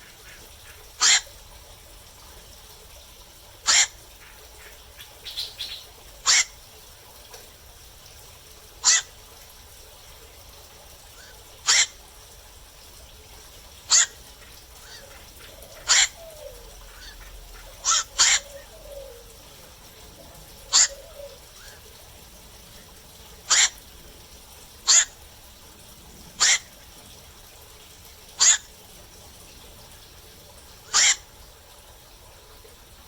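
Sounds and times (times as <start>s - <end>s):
faint steady hiss: 0.0s - 33.0s
herons giving harsh calls: 1.0s - 1.3s, 3.7s - 4.0s, 6.2s - 6.5s, 8.8s - 9.1s, 11.6s - 12.0s, 13.9s - 14.2s, 14.8s - 19.3s, 20.5s - 21.4s, 23.5s - 23.8s, 24.8s - 25.2s, 26.4s - 26.8s, 28.4s - 28.7s, 30.9s - 31.3s.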